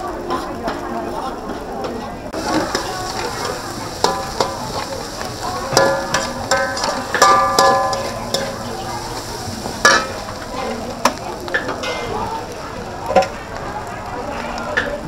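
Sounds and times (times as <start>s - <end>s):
utensil clanging on pan: 2.4s - 12.2s
food sizzling in a pan: 2.4s - 15.0s.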